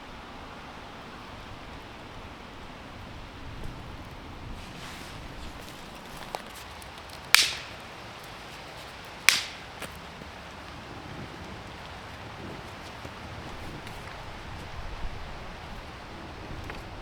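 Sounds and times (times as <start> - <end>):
dry branches snapping: 5.2 - 10.8.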